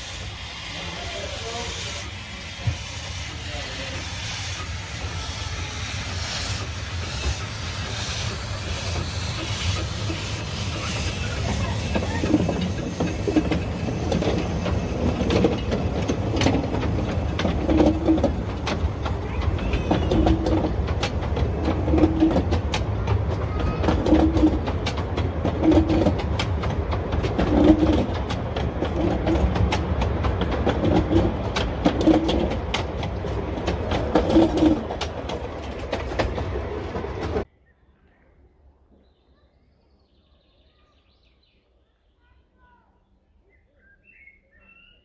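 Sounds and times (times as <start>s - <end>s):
train wheels clattering over joints: 0.7s - 37.5s.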